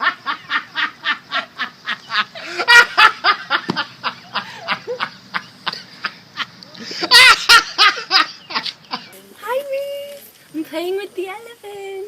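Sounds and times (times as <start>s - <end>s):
person laughing hard: 0.0s - 9.1s.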